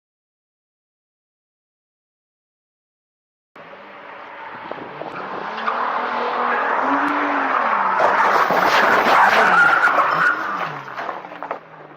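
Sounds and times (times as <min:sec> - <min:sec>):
tyres skidding and squealing: 0:03.6 - 0:11.9.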